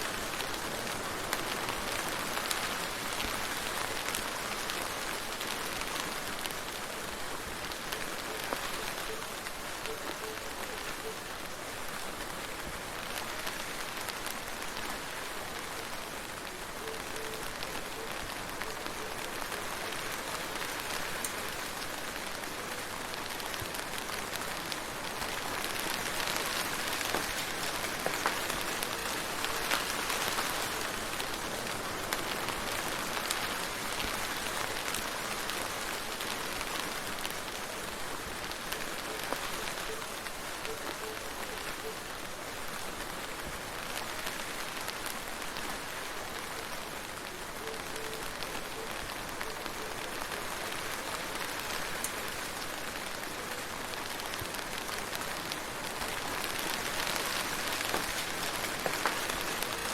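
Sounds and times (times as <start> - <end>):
steady rain: 0.0 - 59.9
raindrop ticks: 16.8 - 42.2, 46.7 - 59.9.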